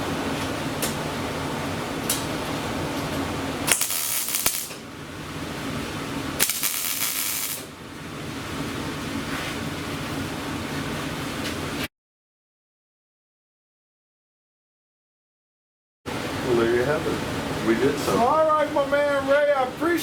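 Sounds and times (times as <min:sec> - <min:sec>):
steady machine hum: 0:00.0 - 0:11.8
loud hissing bursts: 0:03.6 - 0:04.8, 0:06.4 - 0:07.7.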